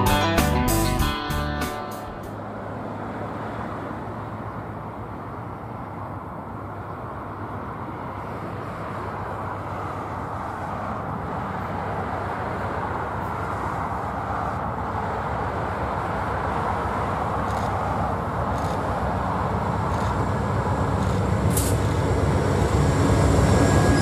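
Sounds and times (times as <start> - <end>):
train rumbling: 1.0 - 24.0.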